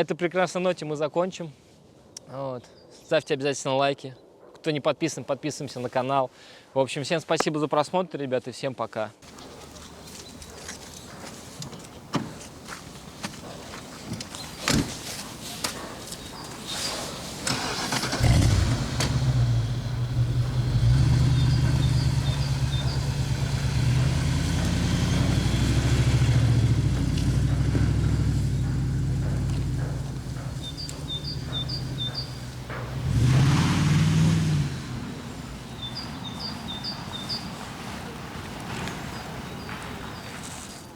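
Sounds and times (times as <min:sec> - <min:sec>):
car engine starting and rumbling: 0:09.2 - 0:36.8.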